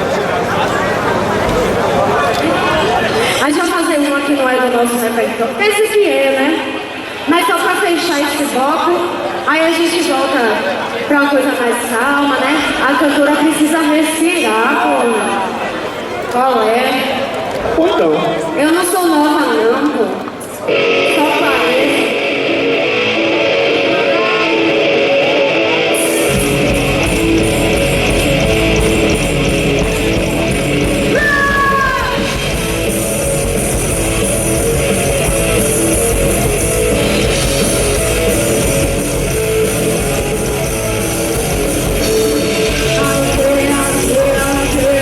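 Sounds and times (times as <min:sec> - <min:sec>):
electric guitar: 0:19.5 - 0:45.0
live rock band playing: 0:20.7 - 0:45.0.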